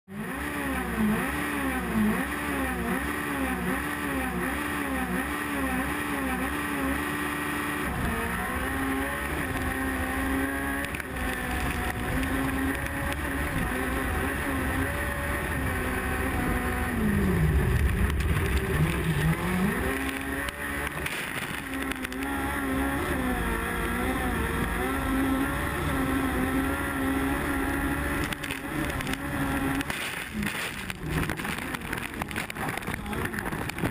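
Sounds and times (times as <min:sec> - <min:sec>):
car engine revving: 0:00.1 - 0:33.9.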